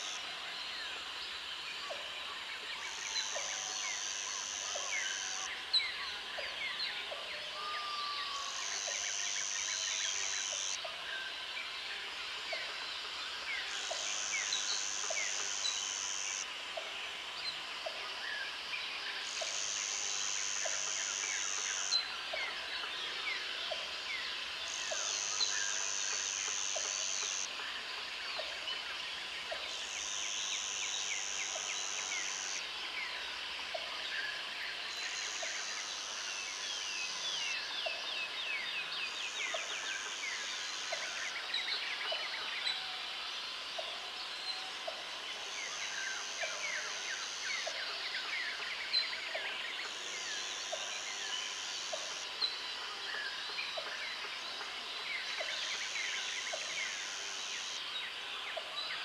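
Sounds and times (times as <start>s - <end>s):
high insect buzz: 13.8s - 16.5s, 19.2s - 22.0s, 24.7s - 27.5s.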